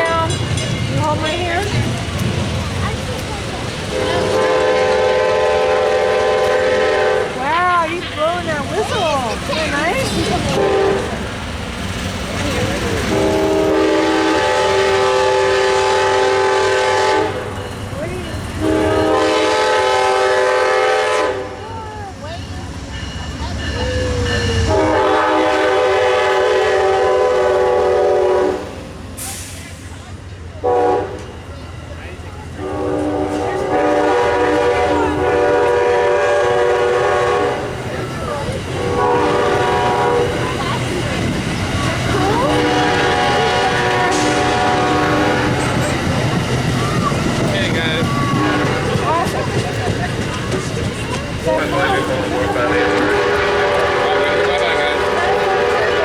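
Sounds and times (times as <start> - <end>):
low rumble of passing train: 0.0 - 56.0
locomotive horn blasts: 3.9 - 7.5, 10.2 - 11.2, 13.0 - 17.5, 18.6 - 21.6, 24.6 - 28.7, 30.6 - 31.3, 32.6 - 37.9, 38.7 - 40.5, 42.0 - 45.8, 48.0 - 49.4, 51.4 - 56.0.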